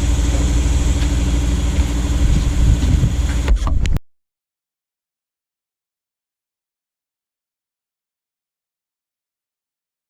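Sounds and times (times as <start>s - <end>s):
small engine running: 0.0s - 3.8s.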